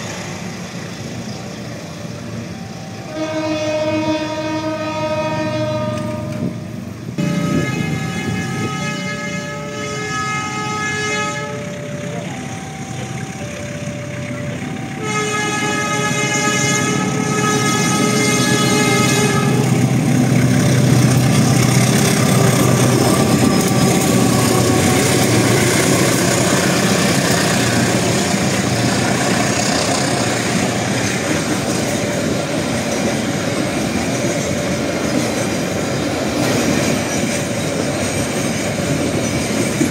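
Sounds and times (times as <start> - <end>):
locomotive horn blasts: 2.9 - 12.8, 14.7 - 20.0.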